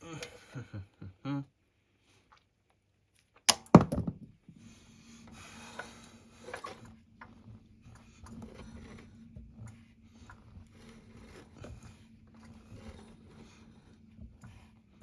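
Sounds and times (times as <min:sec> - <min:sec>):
rubbing: 0:05.2 - 0:15.0.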